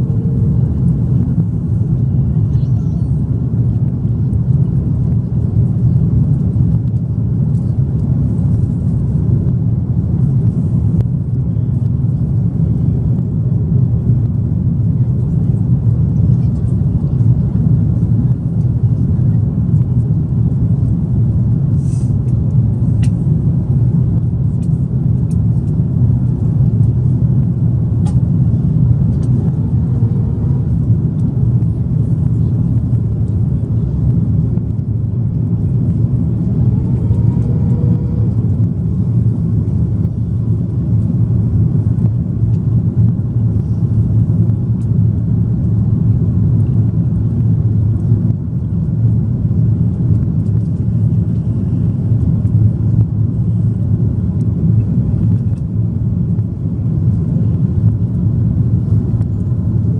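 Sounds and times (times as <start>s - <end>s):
engine and airflow rumble: 0.0s - 59.9s.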